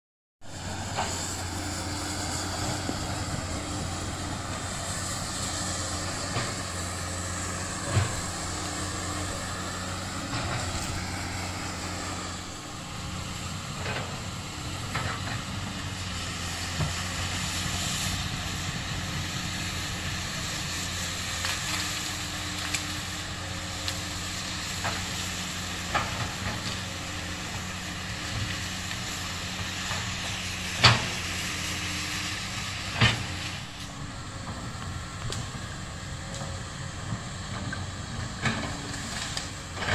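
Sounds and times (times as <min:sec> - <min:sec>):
excavator diesel engine running: 0:00.4 - 0:39.9
sharp cracks and knocks: 0:29.8 - 0:31.4.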